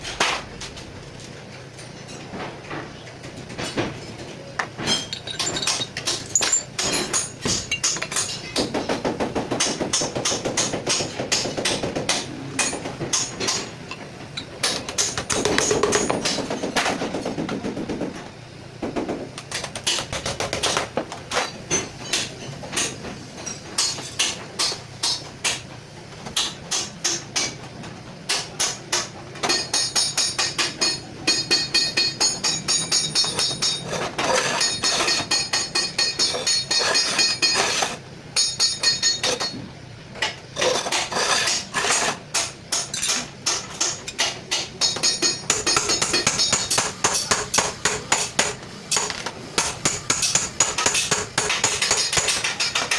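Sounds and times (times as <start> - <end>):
hammer tapping on sheet steel: 41.8 - 52.9.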